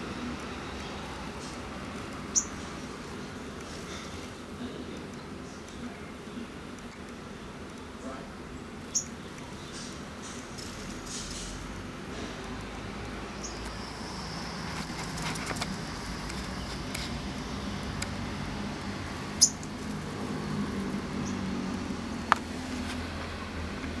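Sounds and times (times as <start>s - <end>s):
bird chirping: 2.2s - 2.8s, 8.5s - 11.6s, 13.2s - 17.7s, 19.3s - 19.8s.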